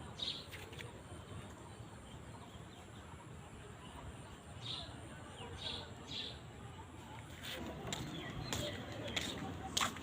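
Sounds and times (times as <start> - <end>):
faint outdoor background noise: 0.0 - 10.0.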